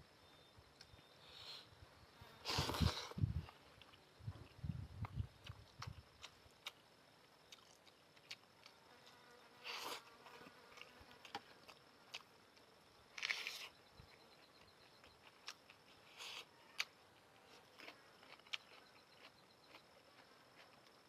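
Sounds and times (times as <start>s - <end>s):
soft chewing: 2.6s - 21.0s.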